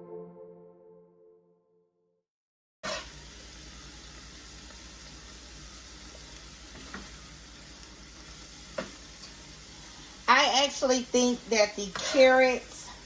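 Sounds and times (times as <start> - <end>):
vegetables sizzling in a pan: 2.8 - 13.0.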